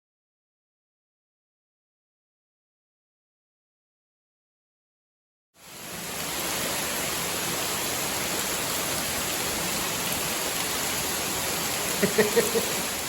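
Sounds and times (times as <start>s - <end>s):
waterfall rushing: 5.6s - 13.0s.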